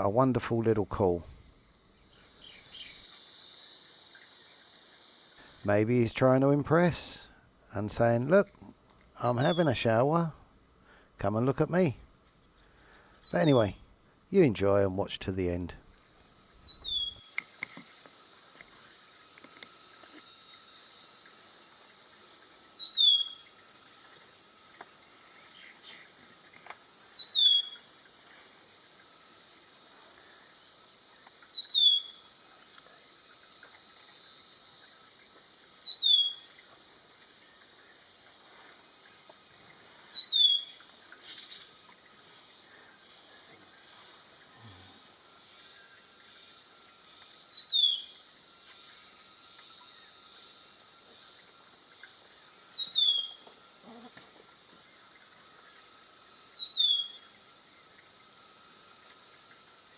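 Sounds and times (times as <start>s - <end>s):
high insect drone: 0.0s - 59.9s
bird whistling call: 16.7s - 17.4s, 22.8s - 23.4s, 27.2s - 27.9s, 31.6s - 32.2s, 35.8s - 36.5s, 40.2s - 41.7s, 47.6s - 48.1s, 52.8s - 53.4s, 56.6s - 57.2s.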